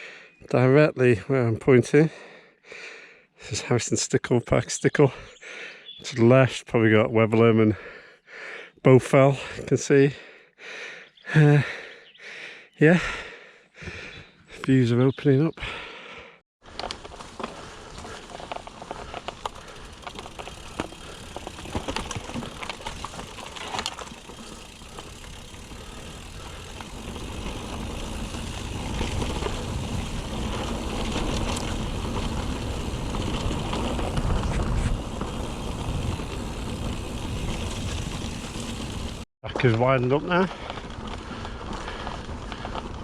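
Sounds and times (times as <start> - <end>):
bike tyre noise: 16.6 - 43.0
bike rattling clicks: 16.7 - 39.2.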